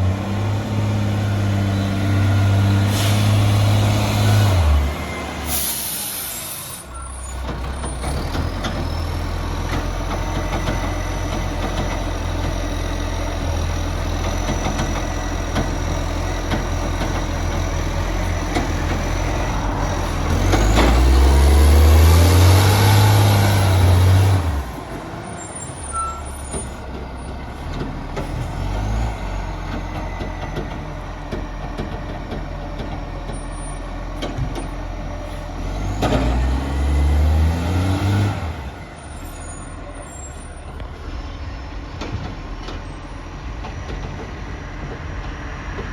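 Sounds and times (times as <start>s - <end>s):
garbage truck diesel engine: 0.0s - 45.9s
air hiss: 5.5s - 7.0s.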